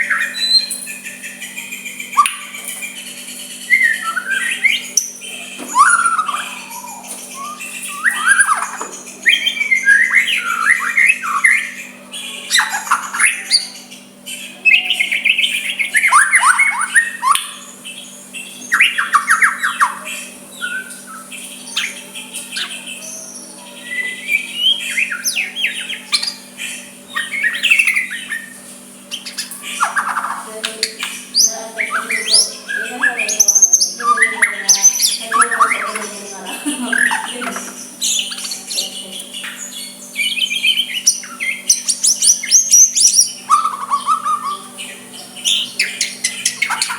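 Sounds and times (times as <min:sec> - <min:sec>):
bird singing varied song: 0:00.0 - 0:46.9.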